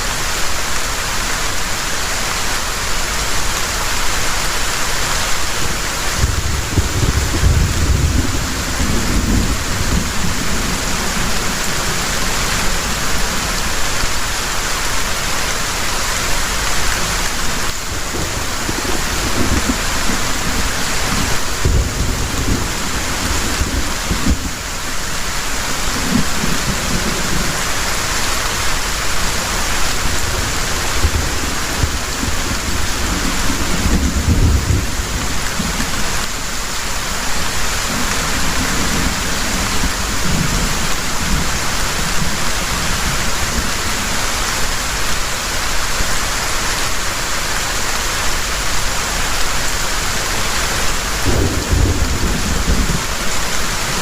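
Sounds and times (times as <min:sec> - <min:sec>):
heavy rain pouring: 0:00.0 - 0:54.0
thunder rumbling: 0:05.6 - 0:13.8, 0:17.9 - 0:24.7, 0:28.5 - 0:36.3, 0:51.0 - 0:54.0.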